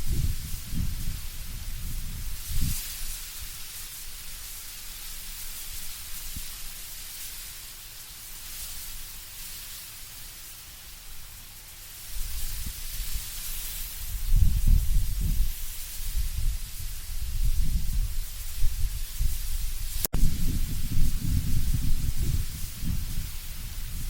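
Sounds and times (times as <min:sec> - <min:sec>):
low rumbling wind gusts: 0:00.0 - 0:03.6, 0:12.1 - 0:24.0
leaves rustling in wind: 0:00.0 - 0:24.0.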